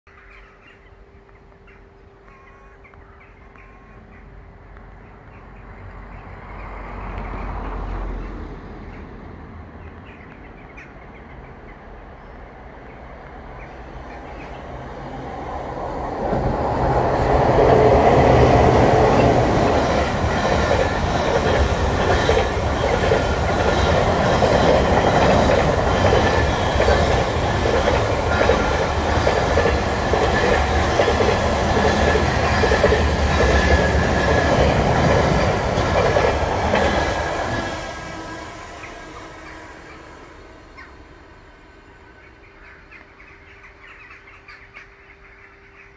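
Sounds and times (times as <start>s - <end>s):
freight train passing: 1.7s - 45.9s
wheels clattering over rails: 16.0s - 37.7s.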